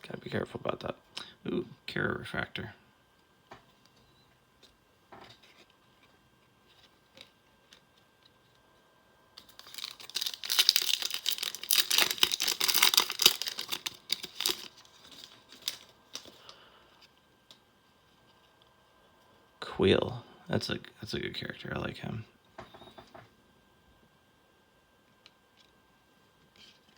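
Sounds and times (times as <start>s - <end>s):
cards being handled: 9.4s - 16.5s
card pack wrapper crinkling and tearing: 9.4s - 16.6s.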